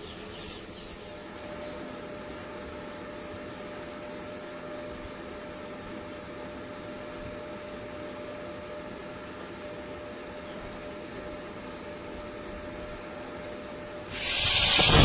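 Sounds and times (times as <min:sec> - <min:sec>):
machine hum: 0:14.1 - 0:15.0
welding arc crackling hiss: 0:14.1 - 0:15.0.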